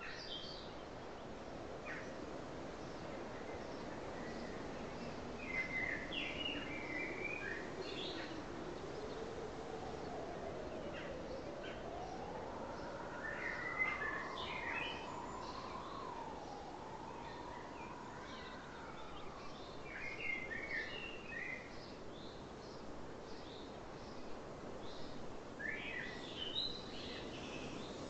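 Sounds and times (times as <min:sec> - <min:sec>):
steady outdoor hiss: 0:00.0 - 0:28.0.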